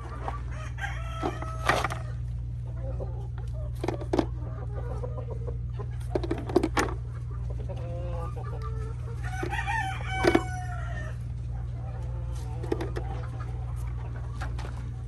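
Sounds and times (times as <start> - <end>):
chickens clucking: 0.0 - 15.0
steady low hum: 0.0 - 15.0.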